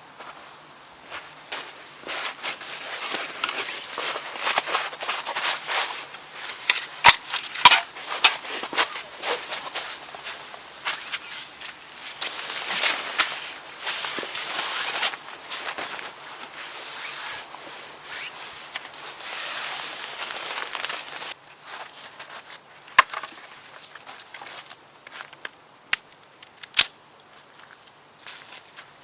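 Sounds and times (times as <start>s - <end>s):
dry wood and brush rustling: 0.0s - 29.0s
wood cracking: 3.1s - 13.3s, 22.8s - 27.0s.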